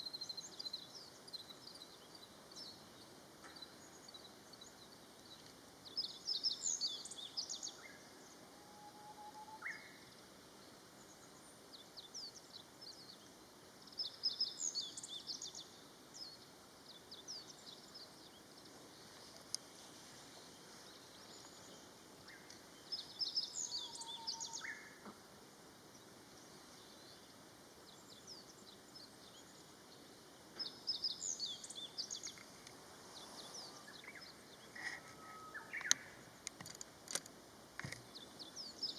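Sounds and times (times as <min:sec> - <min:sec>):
high twittering bird song: 0:00.0 - 0:10.2, 0:20.8 - 0:25.0, 0:25.9 - 0:32.6, 0:33.2 - 0:36.6
faint low bird whistle: 0:08.6 - 0:10.0, 0:23.7 - 0:24.9, 0:34.8 - 0:36.2.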